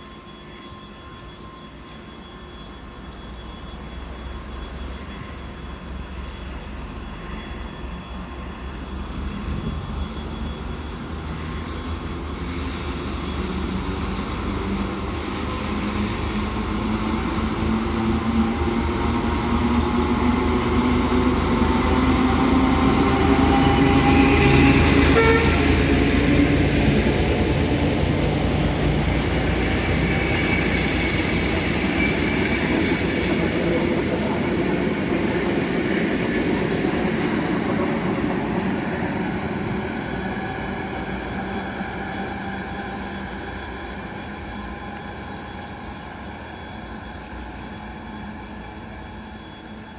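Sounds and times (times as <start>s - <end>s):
diesel locomotive engine: 0.0s - 49.9s
rolling train rumble: 0.0s - 49.9s
train horn toot: 23.1s - 26.1s.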